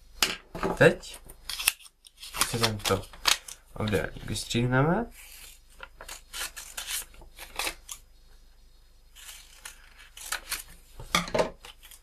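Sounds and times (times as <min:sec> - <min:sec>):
scissors snipping paper: 0:01.4 - 0:04.1, 0:05.2 - 0:08.0, 0:09.2 - 0:10.8, 0:11.6 - 0:12.0
paper rustling: 0:01.5 - 0:04.5.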